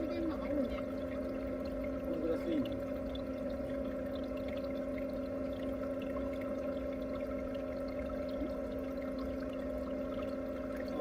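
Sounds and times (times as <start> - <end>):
machine hum: 0.0 - 11.0
running water: 0.0 - 11.0.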